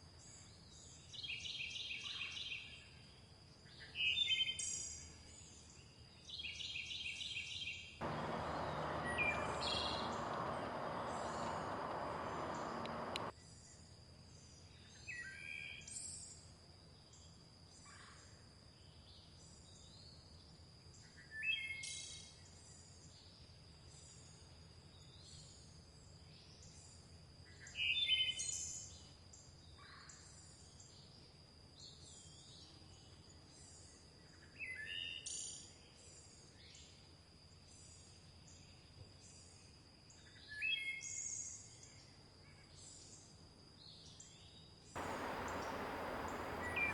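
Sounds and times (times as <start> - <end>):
faint high bird chirps: 8.0 - 13.3, 45.0 - 46.9
bird repeating song phrase: 8.1 - 13.3
high-pitched whine: 45.0 - 46.9
loud rushing noise: 45.0 - 46.9.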